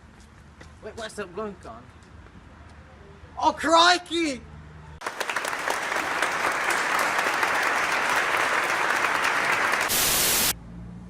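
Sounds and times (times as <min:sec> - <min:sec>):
many hands clapping: 0:05.0 - 0:10.5
burst of hiss: 0:09.8 - 0:10.6.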